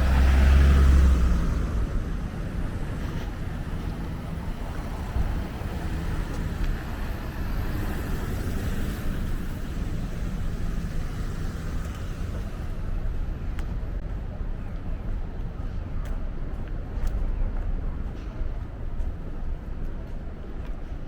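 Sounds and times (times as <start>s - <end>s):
vehicle passing: 0.0s - 12.9s
vehicle engine rumbling: 0.0s - 21.0s.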